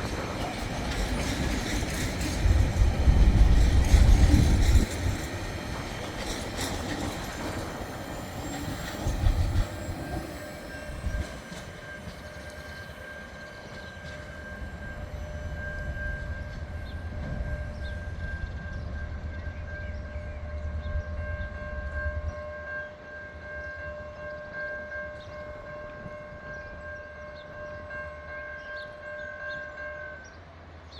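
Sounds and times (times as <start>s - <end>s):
train wagons knocking: 0.0s - 10.2s
freight train wagons rumbling: 0.0s - 30.9s.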